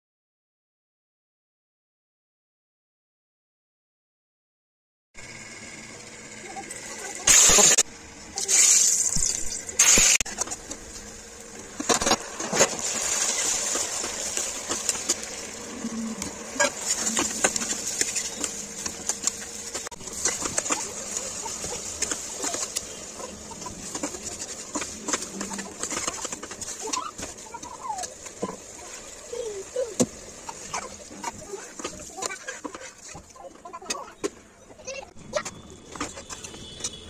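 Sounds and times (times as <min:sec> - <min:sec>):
food sizzling in a pot: 0:08.4 - 0:10.3, 0:11.0 - 0:32.2.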